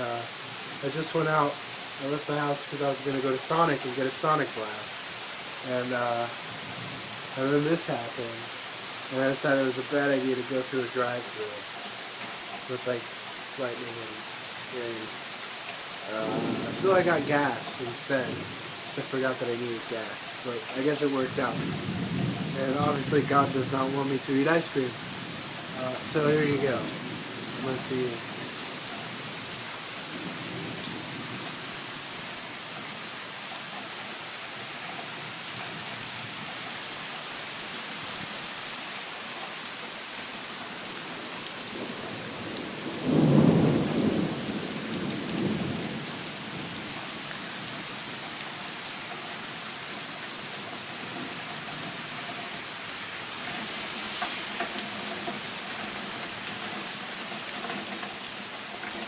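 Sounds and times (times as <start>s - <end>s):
heavy rain falling: 0.0s - 59.0s
thunder rumble: 16.0s - 31.7s, 41.6s - 46.9s.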